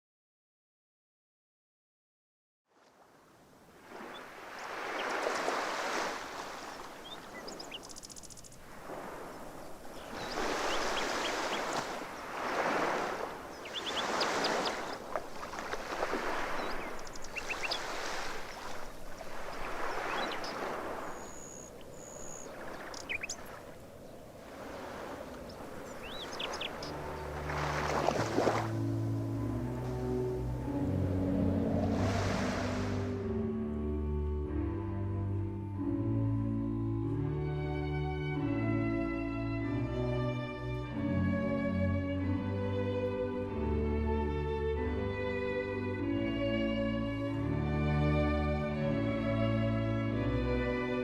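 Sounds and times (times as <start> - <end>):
sea waves washing in: 2.8 - 33.4
small birds chirping: 6.5 - 8.6, 9.2 - 12.4, 13.5 - 15.6, 16.2 - 27.7.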